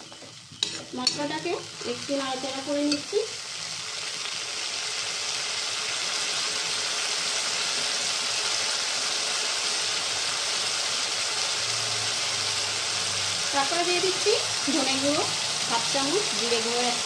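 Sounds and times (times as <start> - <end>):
spice paste sizzling in oil: 0.0 - 17.0.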